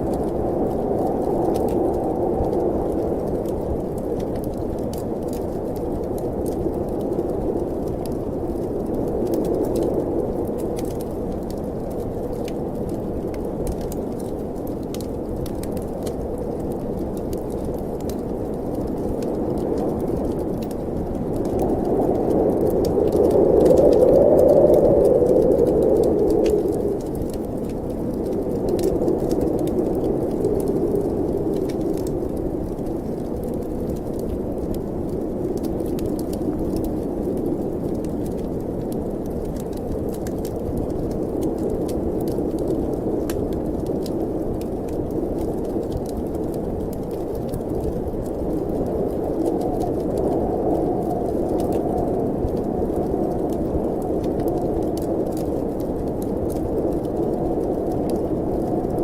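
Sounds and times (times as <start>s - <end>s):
snowstorm wind blowing: 0.0s - 59.0s
wood fire crackling: 0.0s - 59.0s.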